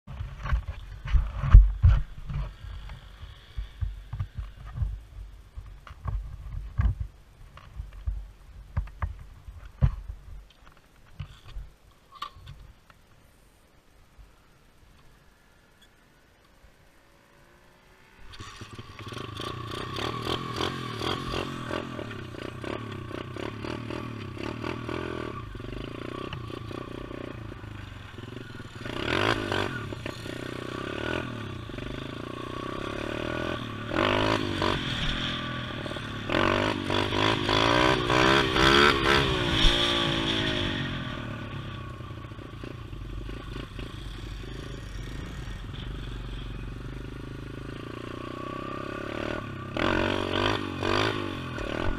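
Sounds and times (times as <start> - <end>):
pit bike engine revving: 17.1 - 51.9.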